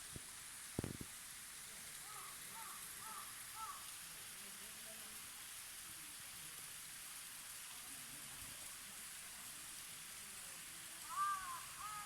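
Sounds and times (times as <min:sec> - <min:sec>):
waterfall rushing hiss: 0:00.0 - 0:12.0
crow cawing: 0:02.1 - 0:03.8, 0:11.0 - 0:12.0.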